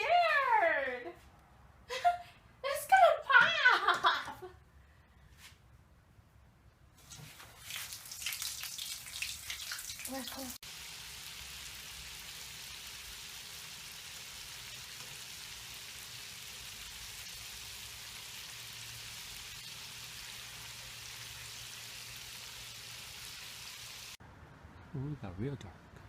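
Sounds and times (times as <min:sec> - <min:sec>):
chicken deep-frying in oil: 0:07.0 - 0:24.2.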